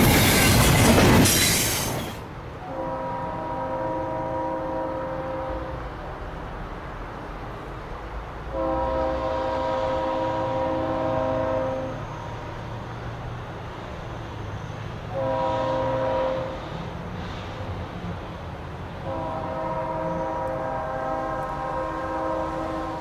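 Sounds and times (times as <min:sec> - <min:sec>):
passing train rumble: 0:00.0 - 0:23.0
locomotive air horn blasts: 0:02.6 - 0:06.0, 0:08.5 - 0:12.1, 0:15.1 - 0:16.8, 0:19.0 - 0:23.0.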